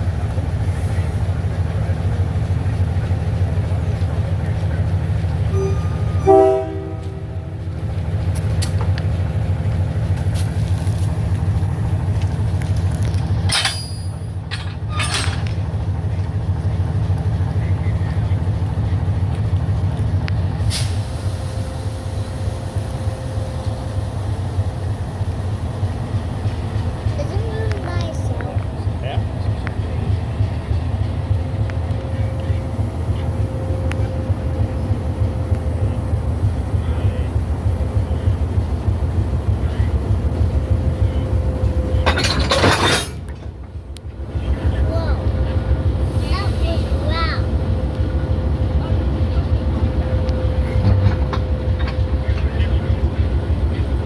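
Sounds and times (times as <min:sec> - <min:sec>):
locomotive engine rumbling: 0:00.0 - 0:54.0
railroad car rolling: 0:00.0 - 0:54.0
faint steady high tone: 0:05.5 - 0:07.4.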